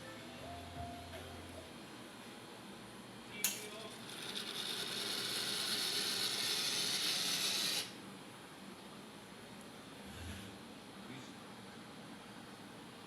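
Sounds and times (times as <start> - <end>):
espresso machine hiss: 4.1 - 8.0.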